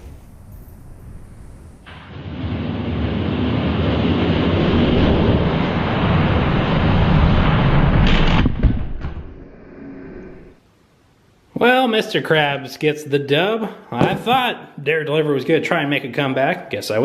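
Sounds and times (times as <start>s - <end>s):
sharp knocks: 14.0s - 14.4s.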